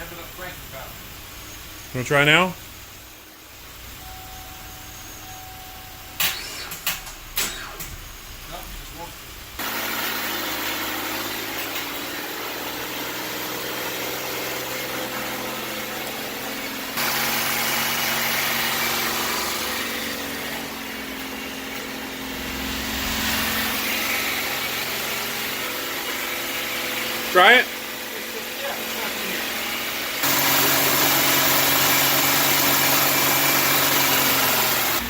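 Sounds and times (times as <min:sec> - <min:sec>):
car engine idling: 0:19.2 - 0:26.9.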